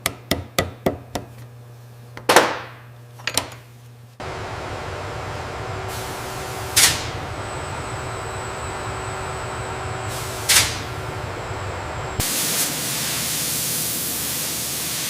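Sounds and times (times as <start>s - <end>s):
workshop machine noise: 0.0s - 15.0s
air hiss: 4.2s - 15.0s.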